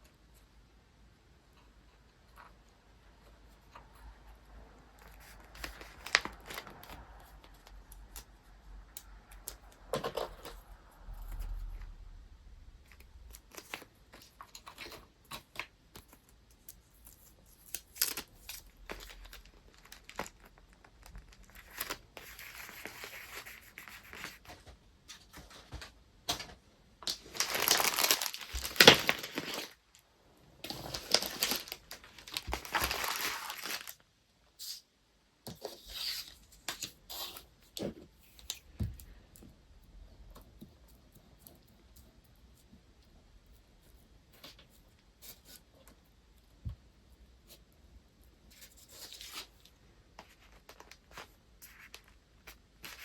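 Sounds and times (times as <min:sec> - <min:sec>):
paper crinkling and tearing: 0:05.0 - 0:08.2, 0:13.3 - 0:24.5, 0:27.1 - 0:29.9, 0:30.6 - 0:34.0
paper rustling: 0:05.0 - 0:08.3, 0:13.3 - 0:26.0, 0:27.0 - 0:29.9, 0:30.6 - 0:34.0.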